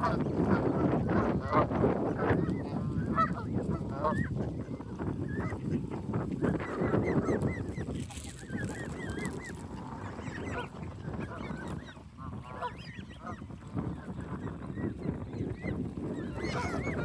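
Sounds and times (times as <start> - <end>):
geese honking: 8.6 - 13.7, 16.3 - 17.0.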